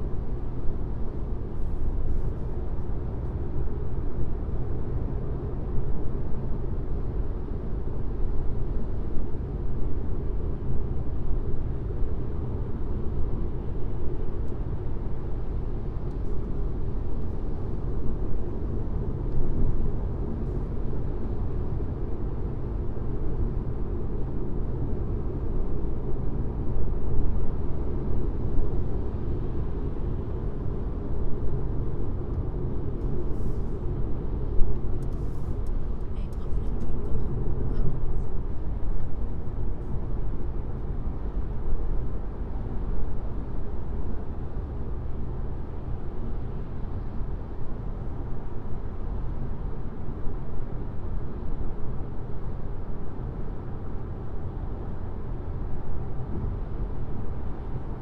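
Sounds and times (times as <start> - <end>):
road and tyre noise drone: 0.0 - 58.0.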